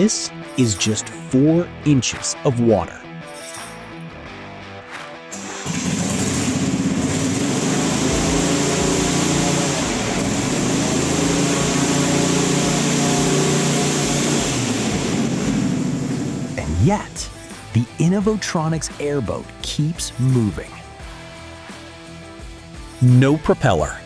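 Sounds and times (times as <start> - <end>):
airboat engine running: 5.4 - 17.6
propeller wind rushing: 5.6 - 16.7.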